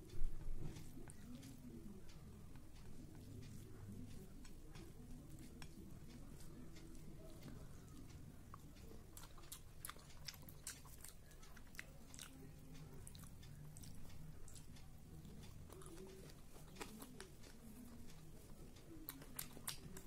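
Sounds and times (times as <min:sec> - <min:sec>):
chewing food: 0:00.0 - 0:20.0
mouth clicks and smacks: 0:06.8 - 0:20.0.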